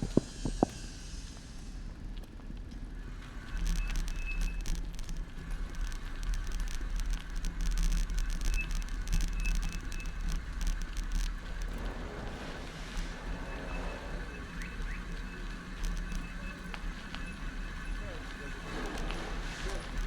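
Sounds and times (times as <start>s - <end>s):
bicycle rattling over road: 0.0s - 20.0s.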